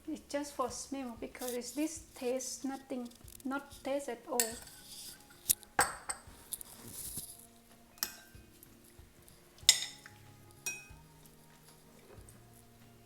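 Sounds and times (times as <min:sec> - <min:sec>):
utensils clinking against dishes: 0:04.4 - 0:07.4, 0:08.0 - 0:08.4, 0:09.6 - 0:11.0.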